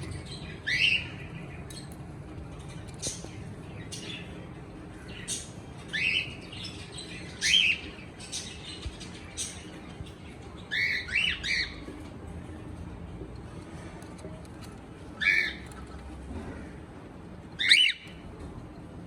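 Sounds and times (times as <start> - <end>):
cockatiel chirping: 15.2 - 15.6, 17.6 - 18.2.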